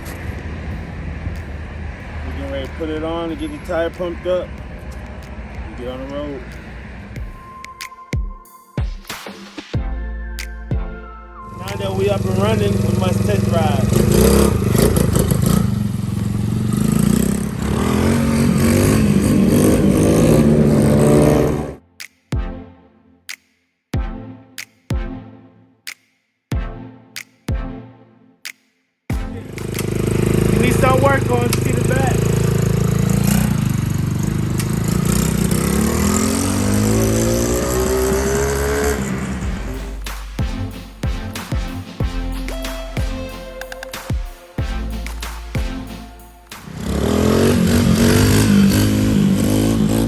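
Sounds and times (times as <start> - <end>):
dirt bike engine running: 11.6 - 21.8, 29.1 - 40.6, 46.6 - 50.0.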